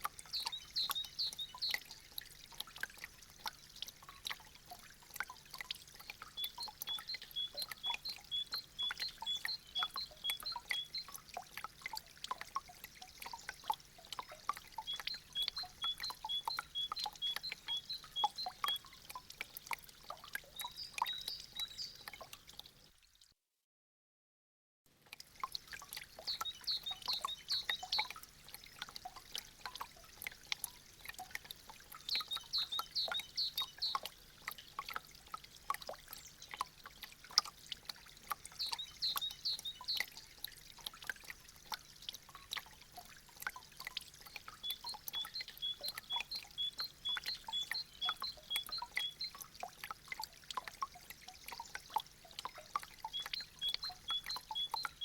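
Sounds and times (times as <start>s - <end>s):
meltwater dripping: 0.0s - 23.1s, 25.0s - 55.0s
light water trickle: 0.0s - 23.5s, 24.9s - 55.0s.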